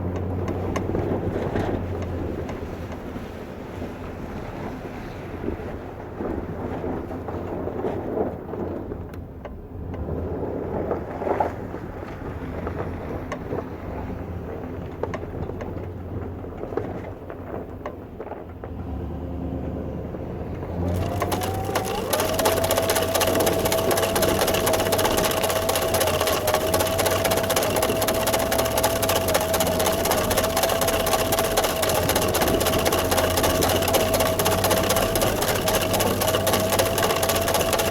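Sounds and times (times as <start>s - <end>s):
snow machine engine whining: 18.7s - 37.9s.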